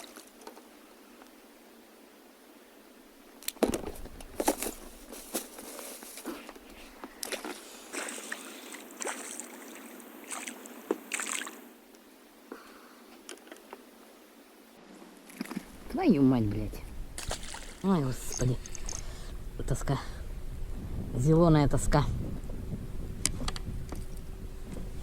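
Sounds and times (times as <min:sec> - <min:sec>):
water sloshing and splashing: 0:07.1 - 0:11.7, 0:17.2 - 0:19.1.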